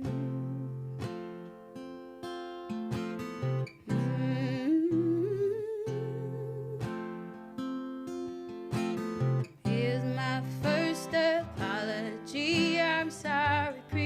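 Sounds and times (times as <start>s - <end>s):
woman humming: 0.0s - 0.9s, 3.9s - 7.0s
acoustic guitar strumming: 0.0s - 14.0s.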